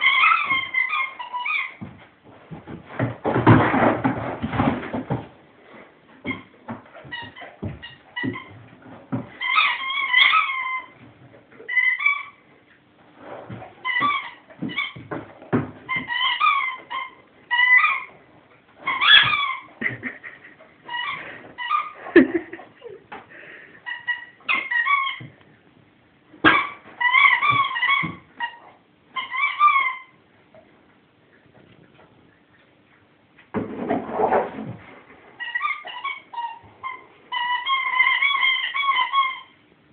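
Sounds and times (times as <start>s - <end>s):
squeaky dog toy squeaking: 0.0s - 1.8s, 9.4s - 11.0s, 11.7s - 12.4s, 15.9s - 18.2s, 18.8s - 19.7s, 23.8s - 25.3s, 26.4s - 30.2s, 35.4s - 39.6s.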